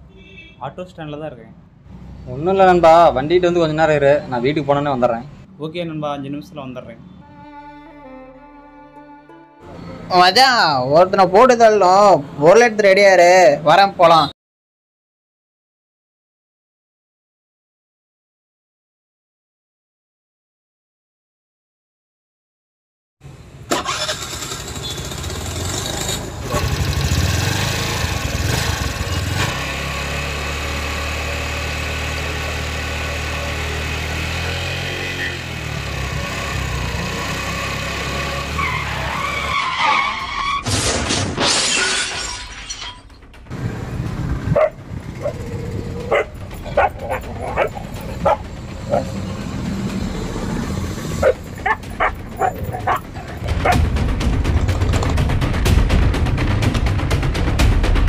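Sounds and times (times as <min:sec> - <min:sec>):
scooter engine running: 0:23.8 - 0:34.7, 0:35.3 - 0:38.3, 0:43.6 - 0:53.0
crash with shattering: 0:40.6 - 0:43.5
dog barking: 0:44.6 - 0:45.4, 0:46.1 - 0:49.1, 0:51.2 - 0:53.8.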